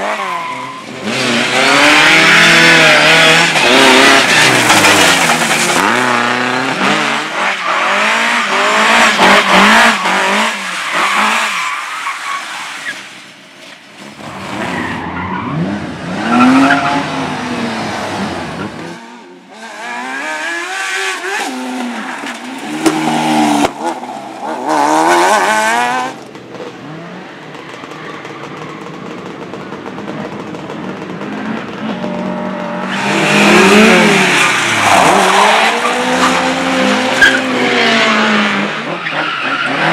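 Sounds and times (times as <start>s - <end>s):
racing car engines revving: 0.0s - 12.5s, 14.0s - 39.9s.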